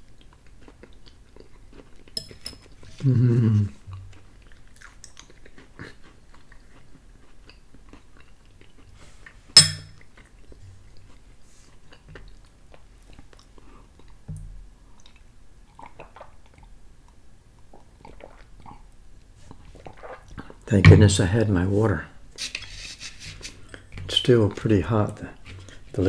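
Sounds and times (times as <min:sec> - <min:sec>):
quiet chewing: 0:00.0 - 0:20.7, 0:25.2 - 0:26.0
cutlery clinking on ceramic bowl: 0:02.2 - 0:02.7, 0:09.6 - 0:10.0.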